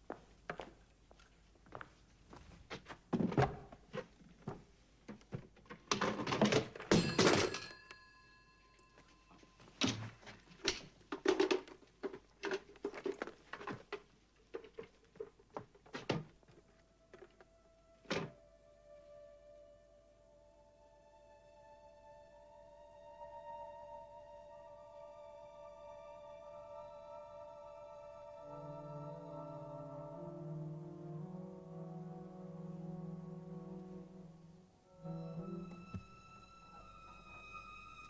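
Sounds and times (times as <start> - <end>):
footsteps indoors: 0.0 - 6.8, 8.9 - 18.4.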